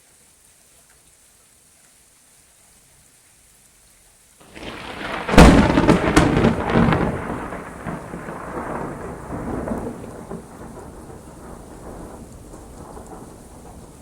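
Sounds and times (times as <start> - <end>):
rain patter: 0.0 - 14.0
thunder cracking and rumbling: 4.4 - 14.0.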